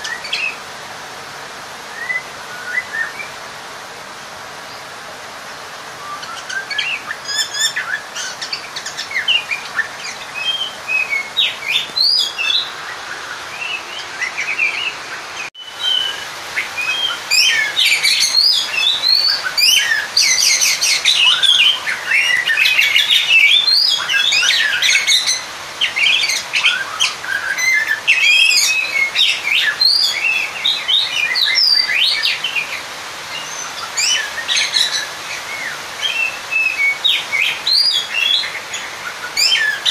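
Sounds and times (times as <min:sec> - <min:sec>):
bird singing whistles and chirps: 0:01.9 - 0:03.4, 0:06.0 - 0:39.9.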